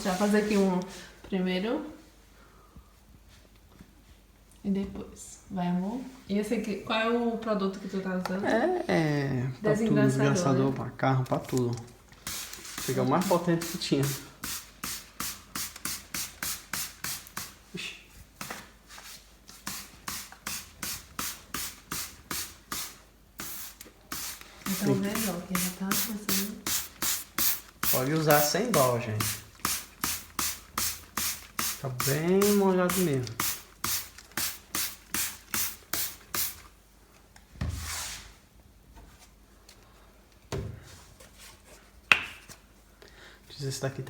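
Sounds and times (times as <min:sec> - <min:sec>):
spray bottle hissing sprays: 0:12.1 - 0:17.7, 0:18.3 - 0:36.8.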